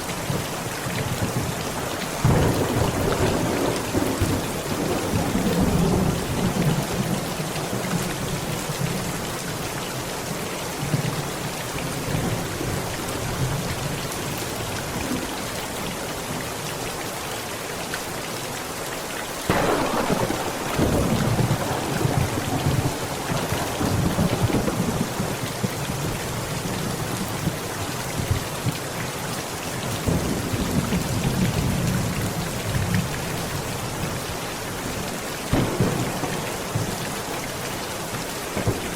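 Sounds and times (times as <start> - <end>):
heavy rain on a tent: 0.0 - 38.9
thunder rumbling: 2.1 - 6.9, 19.5 - 26.4, 35.5 - 38.9.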